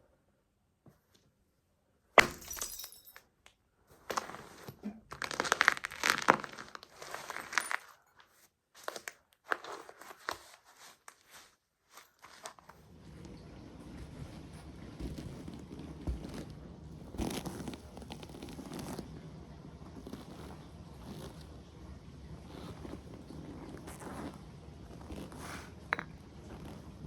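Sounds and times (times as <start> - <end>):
plastic toy cracking under boot: 5.1 - 6.9.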